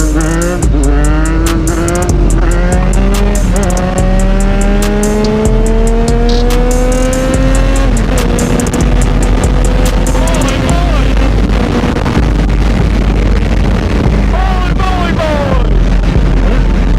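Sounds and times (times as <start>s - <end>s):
motorcycle engine accelerating: 0.0s - 16.9s
wind rumble on microphone: 10.7s - 14.5s.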